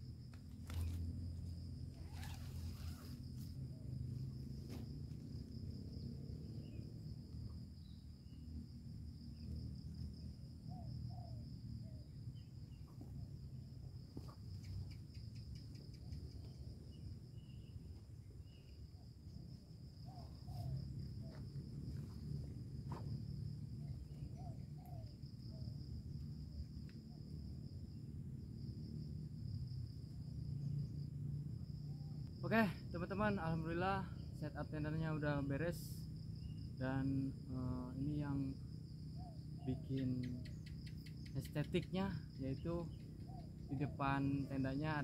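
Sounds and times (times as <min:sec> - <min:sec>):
insects chirring: 0:00.0 - 0:45.0.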